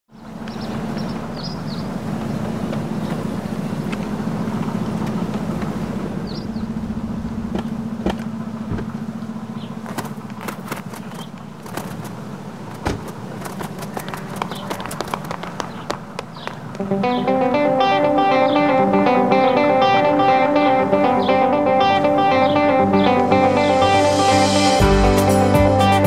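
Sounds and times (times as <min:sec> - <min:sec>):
bird chirps: 0:00.1 - 0:04.0, 0:06.2 - 0:06.8, 0:09.2 - 0:10.0, 0:10.8 - 0:11.5, 0:13.7 - 0:17.4, 0:21.0 - 0:21.5, 0:22.2 - 0:22.8
diesel engine idling: 0:01.0 - 0:17.0
sharp knocks: 0:07.5 - 0:09.0.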